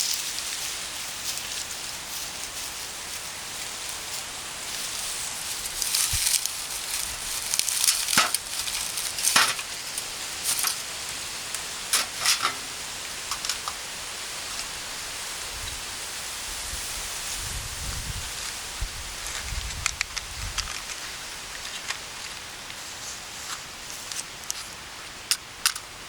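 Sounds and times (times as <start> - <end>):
campfire crackling and popping: 4.7 - 13.8.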